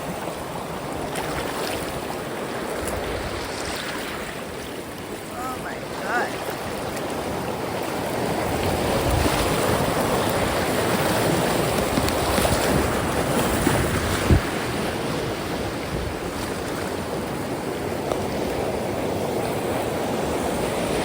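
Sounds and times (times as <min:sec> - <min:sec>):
river rapids rushing: 0:00.0 - 0:21.0.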